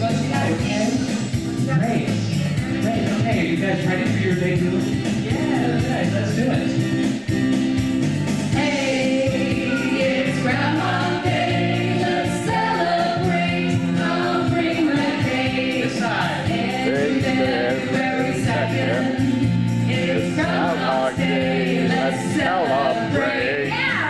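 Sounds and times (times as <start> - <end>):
group singing: 8.4 - 24.0.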